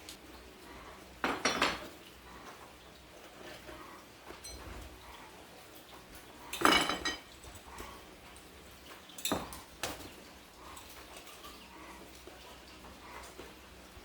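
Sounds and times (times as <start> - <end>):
metal objects clinking: 6.5 - 7.3.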